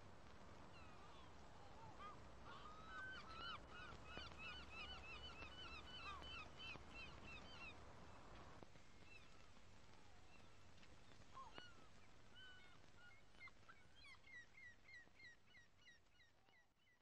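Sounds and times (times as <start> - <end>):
faint outdoor ambience: 0.0 - 17.0
birds chirping: 0.7 - 8.3.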